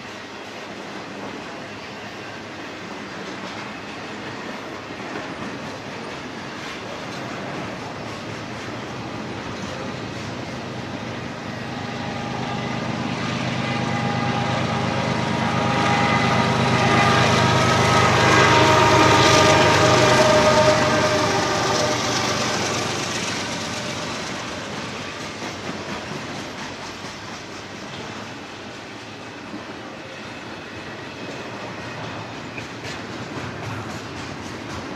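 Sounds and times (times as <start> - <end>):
train wheel clatter: 0.0 - 34.9
locomotive rumble: 5.3 - 28.2.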